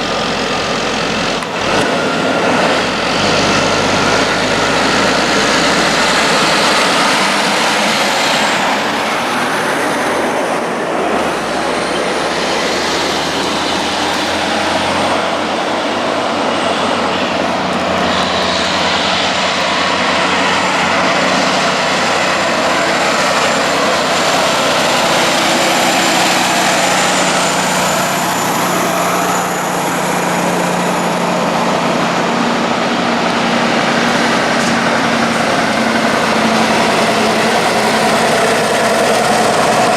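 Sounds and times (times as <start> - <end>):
diesel engine and tyre noise: 0.0 - 39.9
heavy truck traffic: 0.0 - 39.9.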